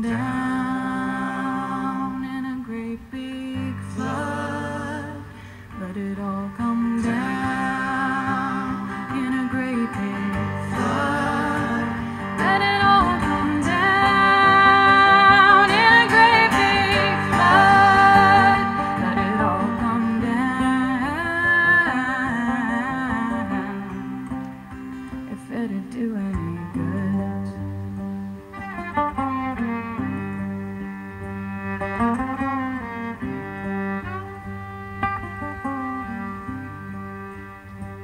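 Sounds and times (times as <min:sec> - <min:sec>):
woman singing wavering melody: 0:00.0 - 0:10.8, 0:11.4 - 0:24.1, 0:25.3 - 0:27.7
acoustic guitar: 0:00.0 - 0:38.0.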